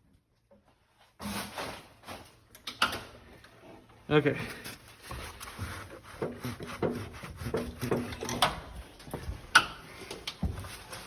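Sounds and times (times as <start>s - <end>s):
hand tools scraping and knocking metal: 5.0s - 11.0s.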